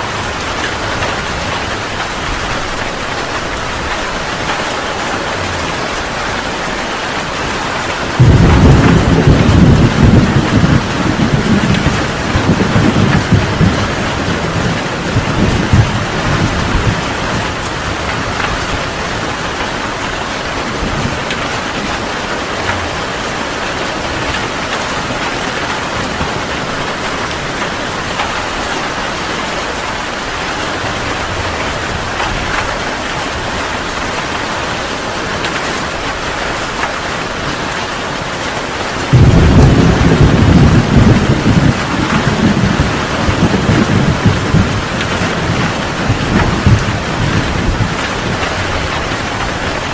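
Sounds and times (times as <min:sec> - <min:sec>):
heavy rain falling: 0:00.0 - 0:49.9
thunder rumbling: 0:00.1 - 0:34.7, 0:39.0 - 0:49.9.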